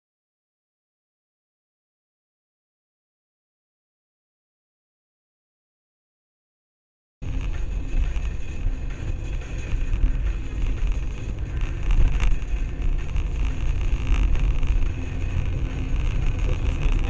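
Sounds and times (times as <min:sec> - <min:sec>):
car engine and road rumble: 0:07.2 - 0:17.0.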